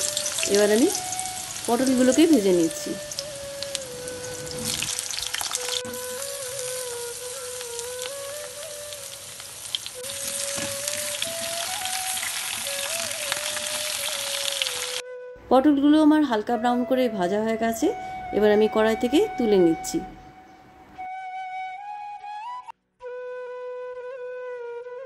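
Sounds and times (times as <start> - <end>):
vegetables sizzling in oil: 0.0 - 15.0
background music melody: 0.0 - 25.0.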